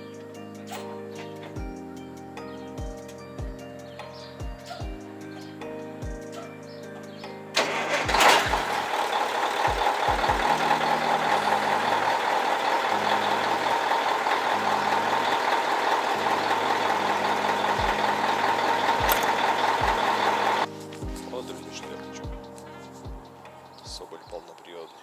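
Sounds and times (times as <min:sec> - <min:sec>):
truck engine and road noise: 0:07.6 - 0:20.7.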